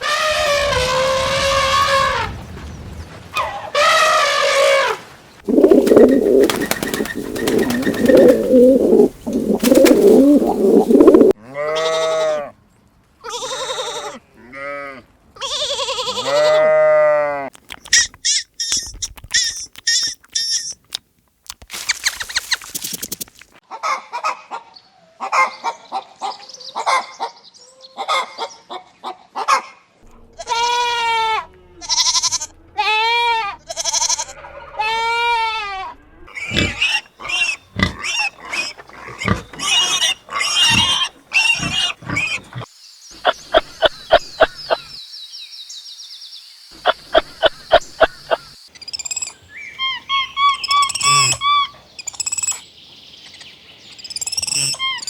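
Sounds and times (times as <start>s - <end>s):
farm animal calls: 5.5s - 11.4s, 36.3s - 45.0s, 49.6s - 52.2s.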